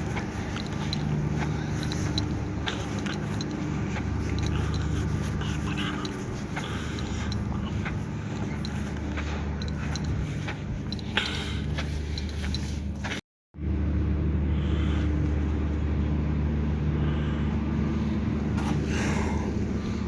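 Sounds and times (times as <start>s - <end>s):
engine droning: 0.0s - 20.0s.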